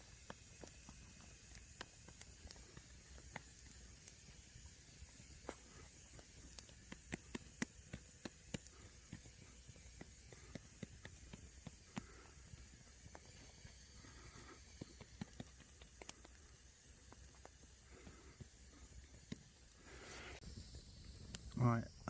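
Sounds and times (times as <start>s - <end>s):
fire crackles and pops: 0.0s - 22.0s
wood fire hissing: 0.0s - 22.0s.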